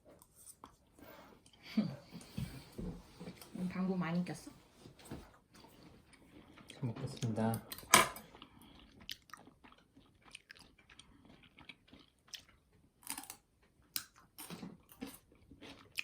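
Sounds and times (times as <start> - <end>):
food crunching: 8.2 - 16.0
person chewing and biting food: 8.2 - 16.0.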